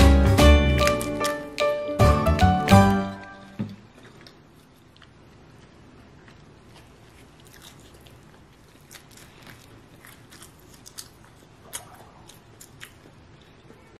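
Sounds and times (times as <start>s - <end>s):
chewing with crisp crunches: 3.7s - 14.0s.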